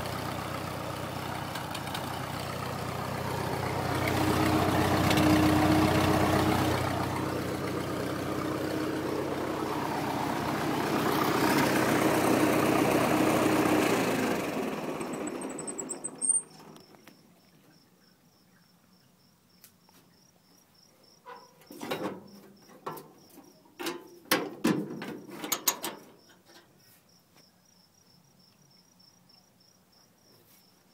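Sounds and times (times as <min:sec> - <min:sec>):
tractor engine running: 0:00.0 - 0:17.2
cricket chirping: 0:15.2 - 0:24.3, 0:26.0 - 0:30.9
knocks and clunks: 0:23.8 - 0:26.6.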